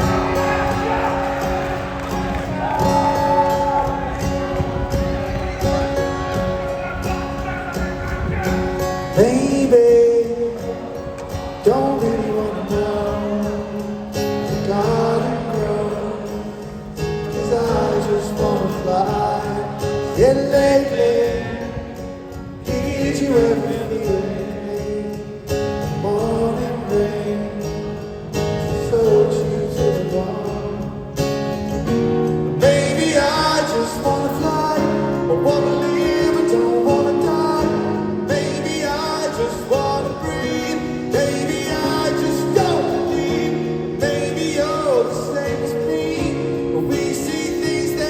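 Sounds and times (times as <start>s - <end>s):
drums: 0.0s - 9.9s
person singing: 0.0s - 21.9s, 32.6s - 48.0s
acoustic guitar: 0.0s - 48.0s
electric guitar: 0.0s - 48.0s.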